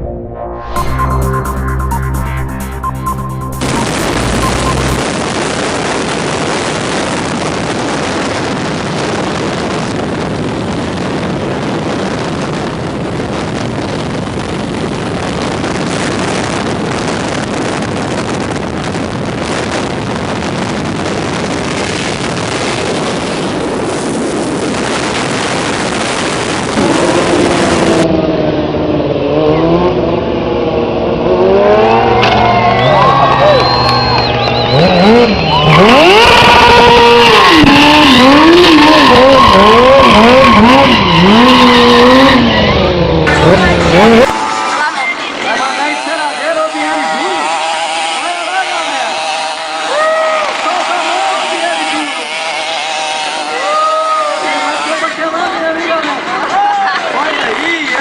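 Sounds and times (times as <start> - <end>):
rush of motorcycle noise: 3.6 - 58.0
motorcycle engines revving: 12.0 - 58.0.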